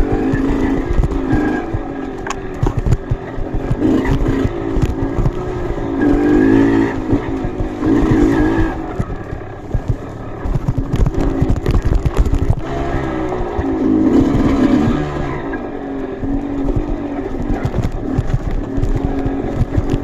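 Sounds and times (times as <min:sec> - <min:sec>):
knocks and thumps: 0:00.0 - 0:14.6, 0:16.6 - 0:20.0
motorcycle engine revving: 0:00.0 - 0:20.0.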